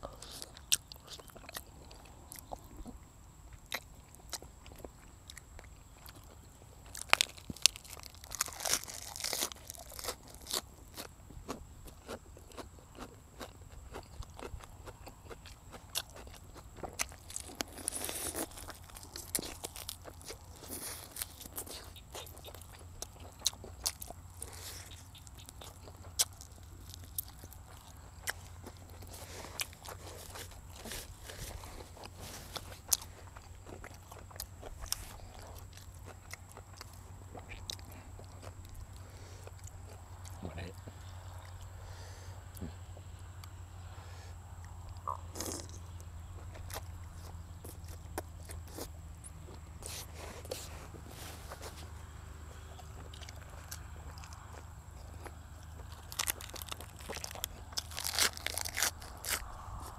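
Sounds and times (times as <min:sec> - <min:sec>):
crunching: 0:00.0 - 0:41.8, 0:44.6 - 0:59.9
person chewing meat: 0:00.0 - 0:43.7, 0:44.4 - 0:59.9
sticky mouth clicks: 0:44.9 - 0:45.9.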